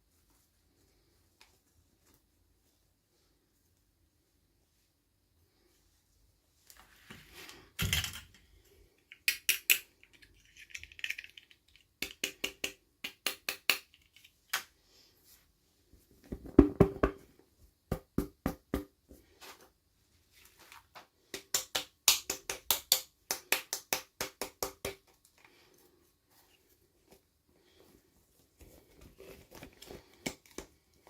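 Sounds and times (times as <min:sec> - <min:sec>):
plastic pieces clicking: 0:09.1 - 0:12.7.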